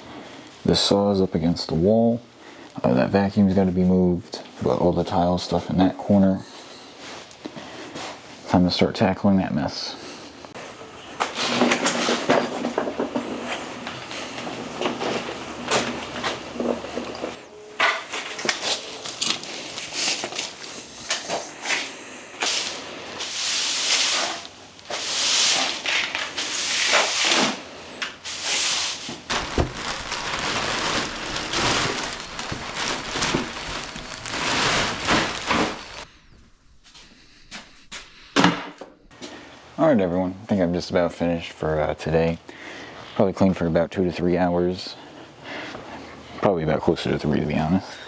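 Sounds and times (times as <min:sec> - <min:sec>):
rustling: 0:10.2 - 0:38.4
wood and tools clattering: 0:10.6 - 0:36.1.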